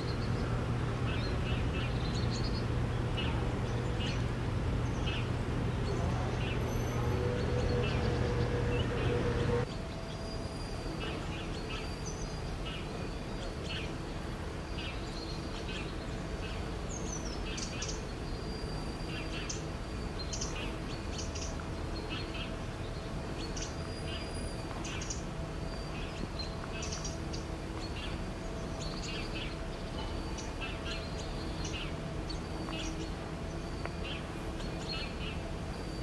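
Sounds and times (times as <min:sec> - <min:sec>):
loud rumble: 0:00.0 - 0:09.7
low background hum: 0:00.0 - 0:36.0
small birds chirping: 0:00.0 - 0:36.0.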